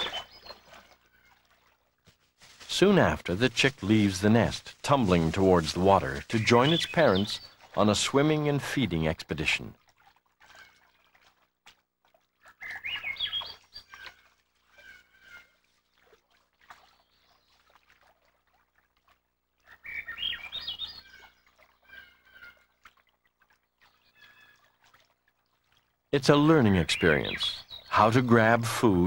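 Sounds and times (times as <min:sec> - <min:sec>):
birds chirping: 0:00.0 - 0:01.4, 0:02.7 - 0:09.8, 0:12.4 - 0:15.6, 0:19.6 - 0:22.7, 0:23.8 - 0:24.7, 0:26.2 - 0:29.0.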